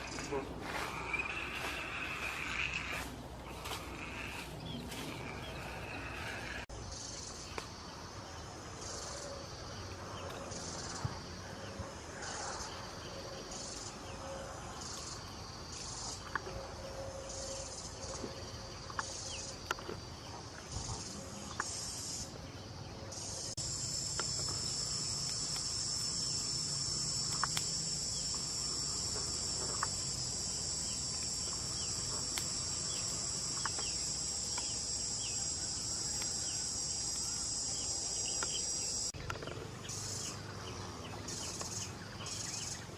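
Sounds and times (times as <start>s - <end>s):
shrill insect drone: 0.0s - 7.4s, 23.1s - 42.9s
insects pulsed calls: 0.0s - 42.9s.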